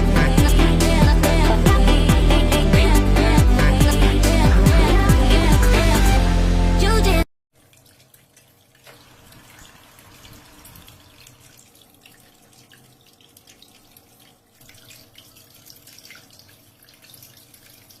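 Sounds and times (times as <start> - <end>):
fountain water trickling: 7.6 - 18.0.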